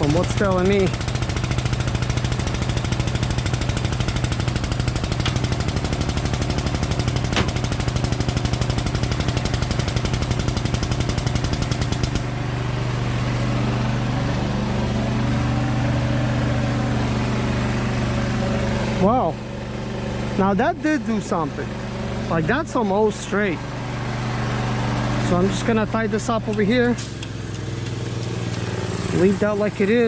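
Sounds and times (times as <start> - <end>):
hydraulic pump rattling: 0.0 - 12.3.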